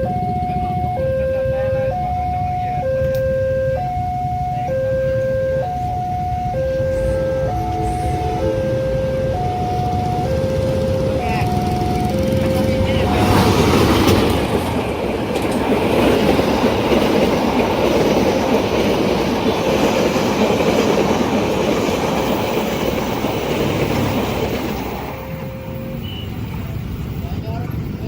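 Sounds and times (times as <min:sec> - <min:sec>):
train wheels clickety-clack: 0:09.8 - 0:26.2.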